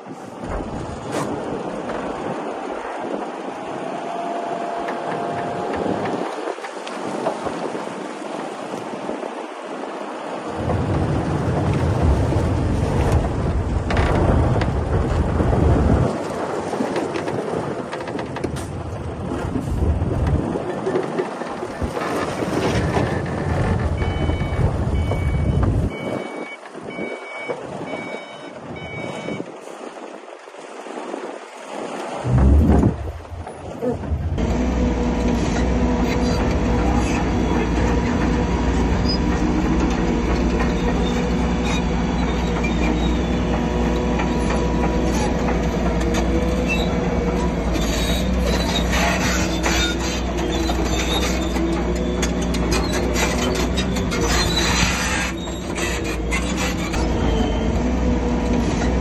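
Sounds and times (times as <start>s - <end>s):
diesel engine rumbling: 9.2s - 16.2s, 17.4s - 30.0s, 32.2s - 59.0s
reversing alarm beeping: 24.0s - 29.4s.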